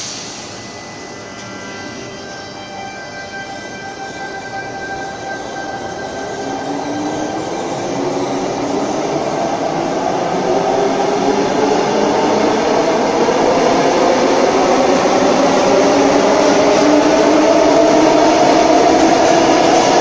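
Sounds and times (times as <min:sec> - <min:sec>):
train wheels rumbling on rail: 0:00.0 - 0:02.5, 0:05.1 - 0:20.0
electric train motor whine: 0:00.0 - 0:09.4.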